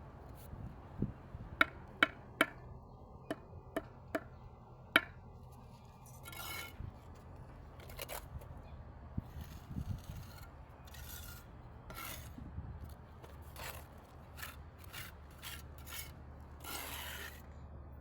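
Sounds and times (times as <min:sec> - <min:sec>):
trowel tapping on brick: 0:01.6 - 0:02.6
trowel scraping mortar: 0:06.2 - 0:06.8, 0:09.3 - 0:12.4, 0:13.2 - 0:17.4.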